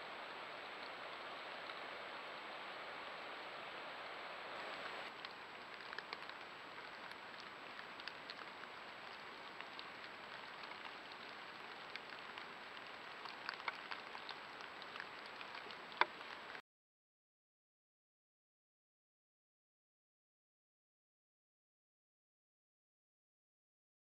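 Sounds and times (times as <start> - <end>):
raindrops ticking: 0.0 - 3.4, 4.1 - 16.6
steady rain hiss: 0.0 - 16.6.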